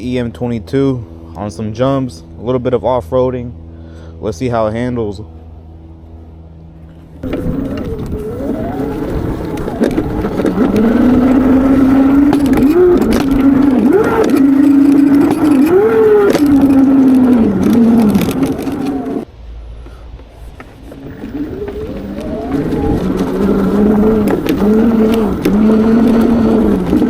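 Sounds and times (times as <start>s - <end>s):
electric motor whining: 6.9s - 19.3s, 20.4s - 27.0s.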